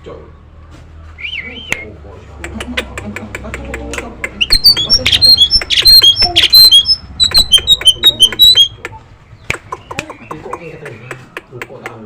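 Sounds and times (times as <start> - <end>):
myna whistles and clicks: 1.2 - 1.9, 4.3 - 11.5
myna soft chattering: 2.4 - 11.6.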